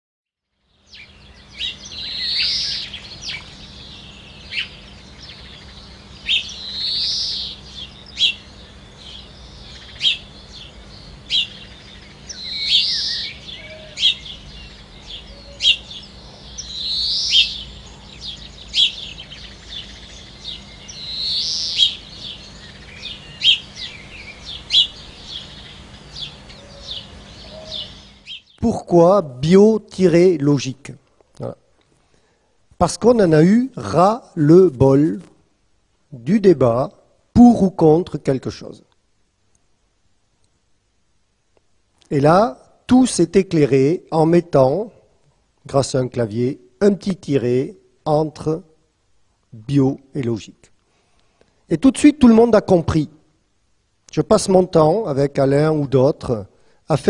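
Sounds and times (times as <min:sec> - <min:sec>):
faint steady hum: 0:00.4 - 0:57.0
birds chirping: 0:00.5 - 0:45.0.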